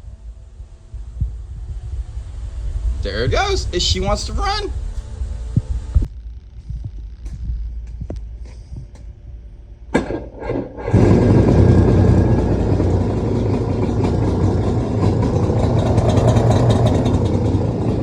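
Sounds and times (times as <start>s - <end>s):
jet ski engine starting: 10.2s - 18.0s.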